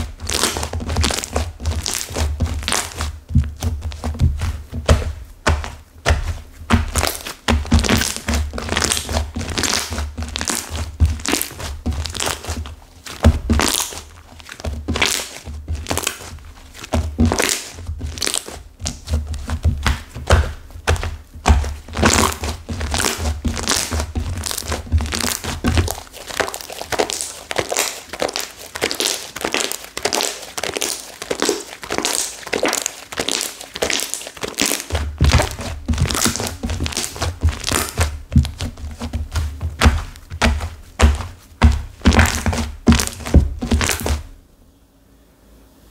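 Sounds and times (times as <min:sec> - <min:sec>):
dull thuds: 0:00.0 - 0:26.6, 0:34.9 - 0:44.4
hardened slime crackling and crunching: 0:00.0 - 0:44.4.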